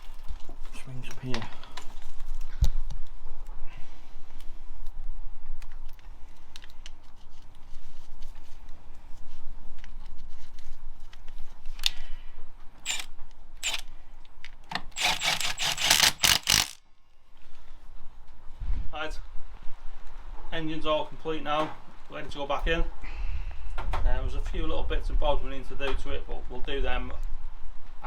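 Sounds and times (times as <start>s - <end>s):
tools clinking and scraping: 12.8s - 13.8s.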